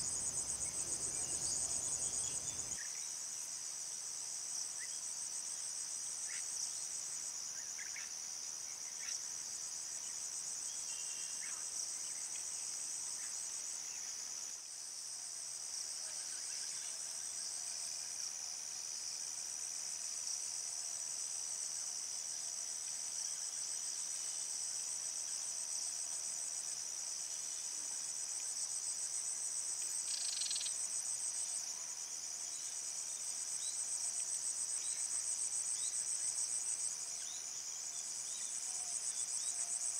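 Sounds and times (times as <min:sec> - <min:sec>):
insects trilling: 0:00.0 - 0:02.9, 0:30.0 - 0:30.9.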